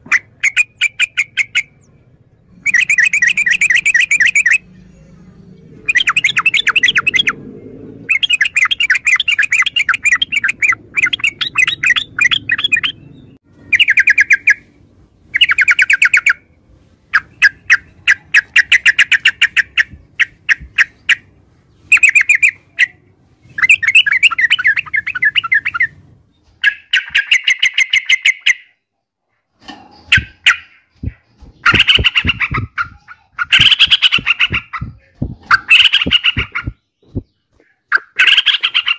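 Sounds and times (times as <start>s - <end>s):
bulbul singing: 0.0s - 16.5s, 29.9s - 38.9s.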